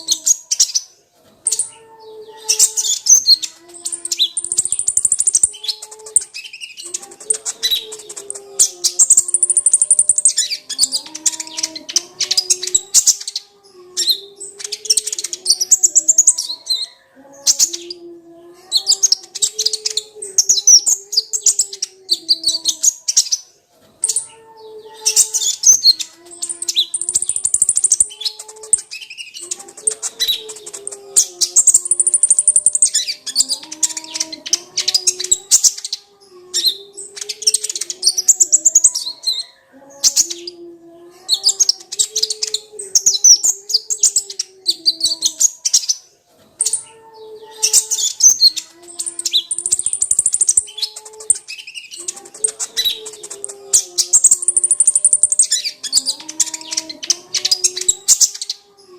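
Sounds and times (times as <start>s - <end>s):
sunbird twittering song: 1.5s - 18.0s, 25.0s - 40.6s, 46.6s - 58.7s.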